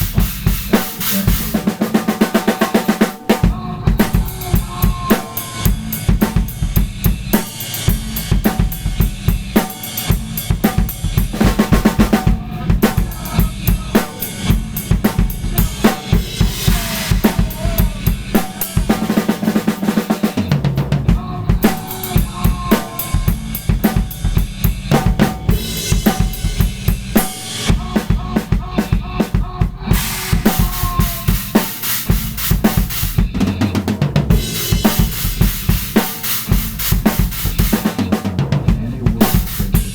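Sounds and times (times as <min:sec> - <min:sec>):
cymbal washes: 0:00.0 - 0:27.7, 0:29.9 - 0:33.2.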